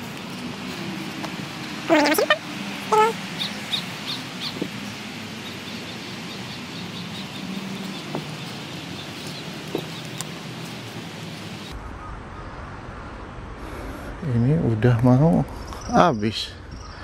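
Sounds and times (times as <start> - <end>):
bird calls: 0.0 - 11.8
high bird chirps: 1.9 - 11.8.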